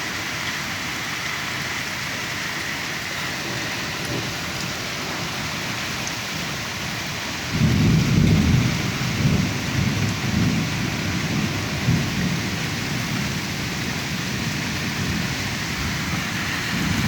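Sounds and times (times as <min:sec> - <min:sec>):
hail and rain beating down: 0:00.0 - 0:17.0
deep pulsing storm rumble: 0:07.5 - 0:17.0.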